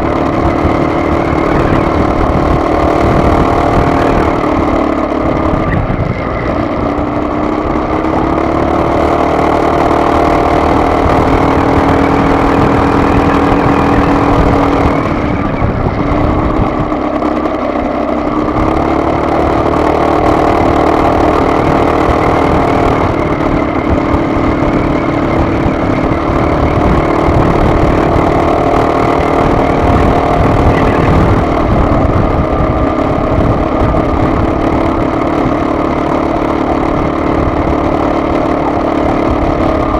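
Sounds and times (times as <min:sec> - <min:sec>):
car engine running: 0:00.0 - 0:39.9
low road rumble: 0:00.0 - 0:39.9.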